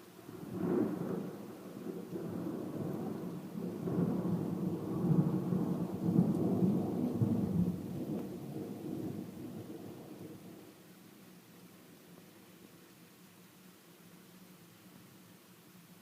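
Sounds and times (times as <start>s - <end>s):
thunder rumbling: 0.3s - 10.7s.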